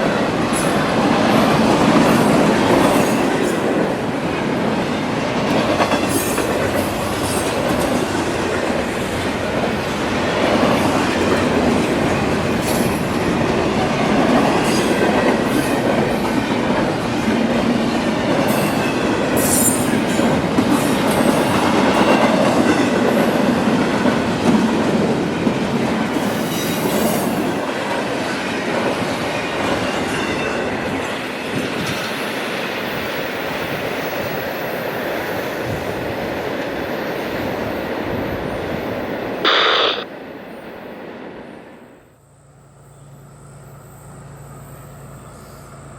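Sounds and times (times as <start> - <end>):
train wheels clattering on rails: 0.0 - 38.9
train wheel squeals: 18.4 - 22.9, 26.1 - 27.5, 42.2 - 45.9.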